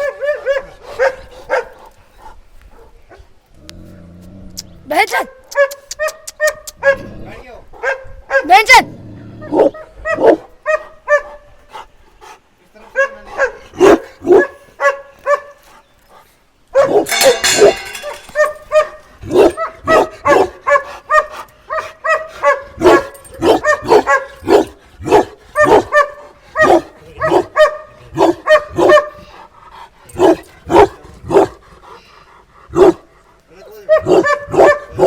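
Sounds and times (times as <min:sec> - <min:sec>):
dog barking: 0:00.0 - 0:01.8, 0:05.6 - 0:07.1, 0:07.8 - 0:08.8, 0:09.5 - 0:11.5, 0:12.9 - 0:15.6, 0:16.7 - 0:29.3, 0:30.2 - 0:31.6, 0:32.7 - 0:33.1, 0:33.9 - 0:35.0.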